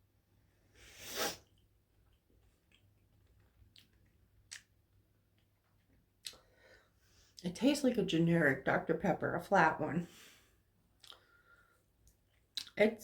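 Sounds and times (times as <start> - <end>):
person chewing marshmallow: 1.5 - 6.4, 11.0 - 11.4, 12.0 - 12.8.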